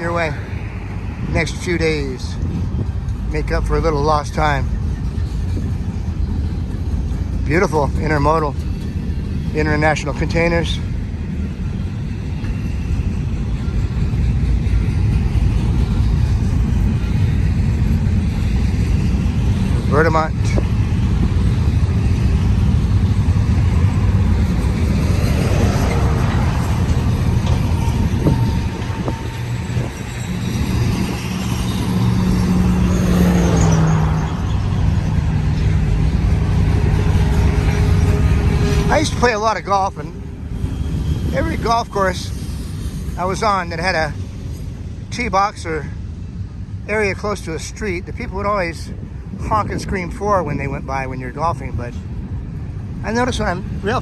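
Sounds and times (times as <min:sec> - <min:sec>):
freight train rolling past: 0:00.0 - 0:54.0
steady low rumble: 0:00.0 - 0:54.0
vehicle passing by: 0:19.4 - 0:42.4.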